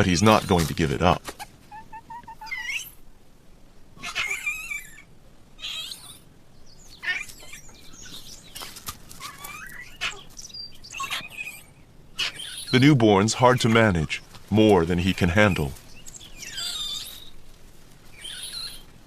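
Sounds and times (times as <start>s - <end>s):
monkeys wavering calls: 1.3s - 3.0s, 4.0s - 6.3s, 6.9s - 8.4s, 9.2s - 14.1s, 15.0s - 17.4s, 18.1s - 18.9s.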